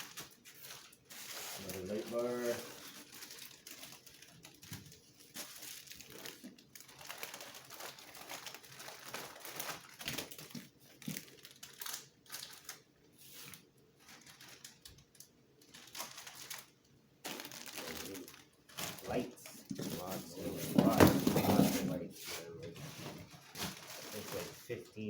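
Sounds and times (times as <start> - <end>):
plastic packaging crinkling: 0.0 - 22.0, 22.8 - 25.0.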